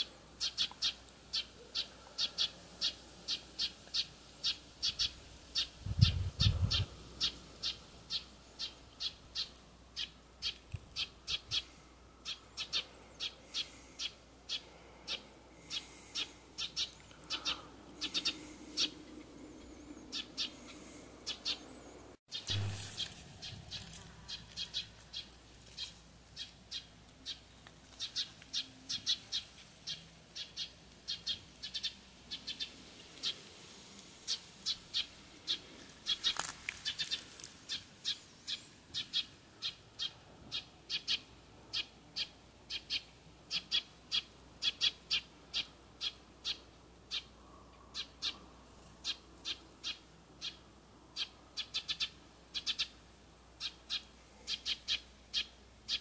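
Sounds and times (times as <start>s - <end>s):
bird chirping: 0.0s - 33.4s.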